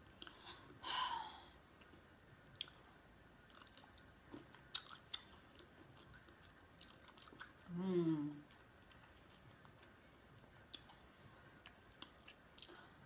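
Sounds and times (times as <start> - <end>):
faint close-up chewing: 3.4 - 13.0.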